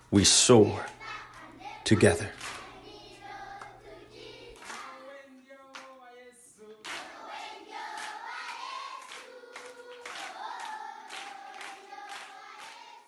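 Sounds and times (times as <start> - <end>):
group singing held notes: 0.8 - 5.6, 6.6 - 13.0
hand claps: 2.3 - 2.8, 3.6 - 3.8, 4.6 - 6.1, 6.8 - 13.0.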